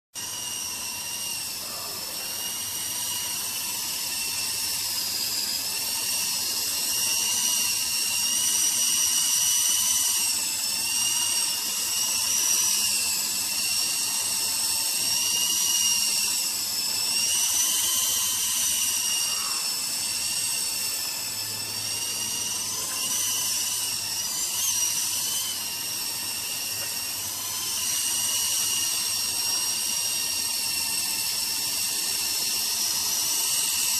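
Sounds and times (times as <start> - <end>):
toy helicopter motor whining: 0.2 - 33.9.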